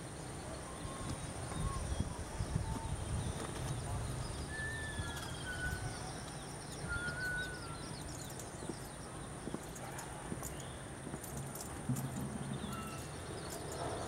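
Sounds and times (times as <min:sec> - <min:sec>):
bird whistling: 0:04.3 - 0:08.4.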